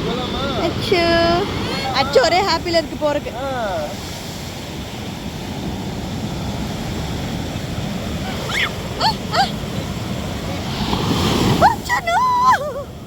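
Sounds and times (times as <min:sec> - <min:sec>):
surf washing on beach: 0:00.0 - 0:13.0
high-pitched vocal cries: 0:08.3 - 0:09.6.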